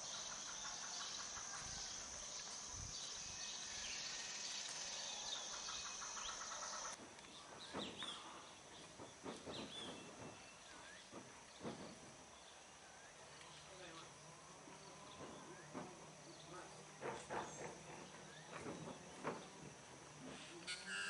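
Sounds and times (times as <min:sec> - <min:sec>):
birds chirping: 0:00.0 - 0:19.6
high-pitched insect drone: 0:20.6 - 0:21.0.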